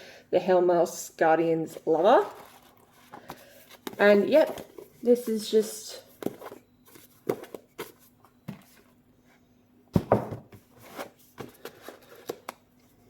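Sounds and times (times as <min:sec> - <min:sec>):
books and packaging knocking and rustling: 0:06.1 - 0:09.0, 0:09.9 - 0:12.5.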